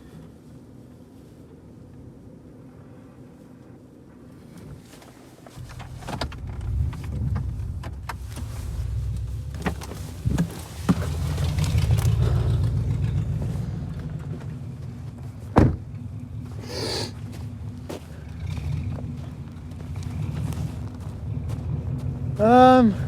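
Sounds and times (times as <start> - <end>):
car engine running: 5.6 - 23.0
loud thump: 15.5 - 15.9.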